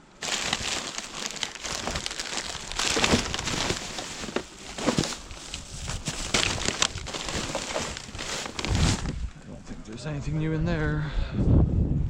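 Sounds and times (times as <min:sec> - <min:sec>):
plastic bin bags rustling: 0:00.0 - 0:09.3.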